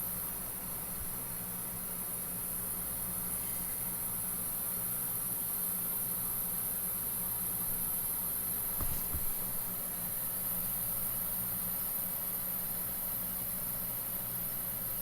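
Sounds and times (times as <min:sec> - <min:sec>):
air conditioner compressor humming: 0:00.0 - 0:15.0
brief knocks: 0:08.8 - 0:09.5.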